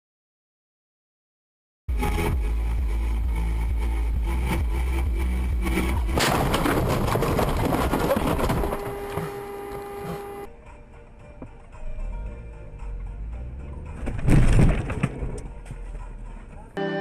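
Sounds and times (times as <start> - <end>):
car engine and road rumble: 1.9 - 16.8
loud rough crash: 6.1 - 9.3, 14.0 - 15.3.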